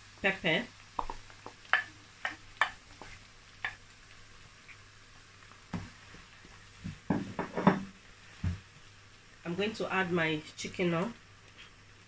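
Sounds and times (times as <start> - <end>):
wooden spatula scraping and knocking: 1.0 - 3.8, 6.8 - 8.6.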